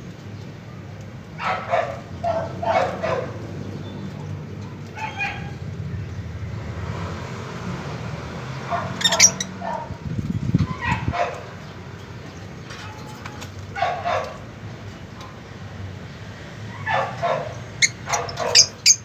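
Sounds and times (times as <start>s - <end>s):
pet birds short calls: 8.8s - 9.6s, 16.7s - 19.0s.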